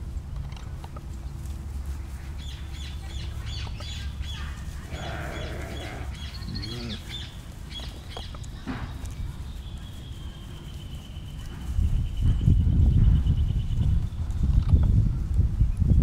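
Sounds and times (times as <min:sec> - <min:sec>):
steady low rumble: 0:00.0 - 0:16.0
bird chirping: 0:02.3 - 0:14.9.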